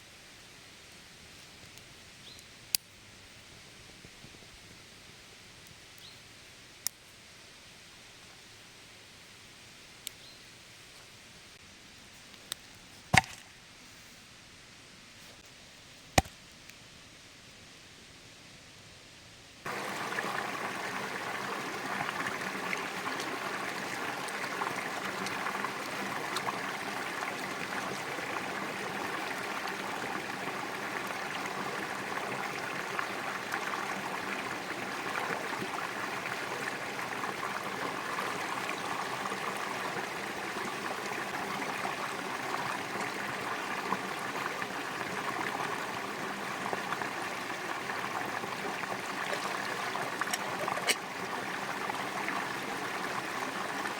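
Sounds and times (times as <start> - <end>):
stream water running: 19.6 - 53.9.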